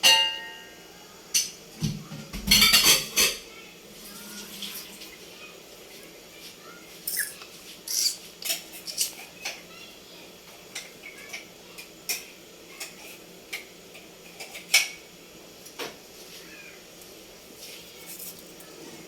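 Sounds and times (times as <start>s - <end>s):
utensils clinking on pots and dishes: 0.0s - 3.5s, 7.0s - 9.7s, 10.5s - 15.1s.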